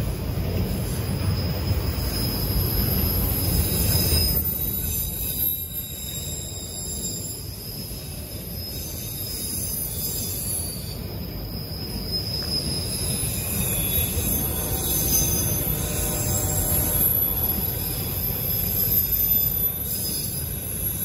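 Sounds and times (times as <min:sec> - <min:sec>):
train wheels rumbling on rail: 0:00.0 - 0:21.0
high-pitched wheel squeal: 0:00.8 - 0:21.0.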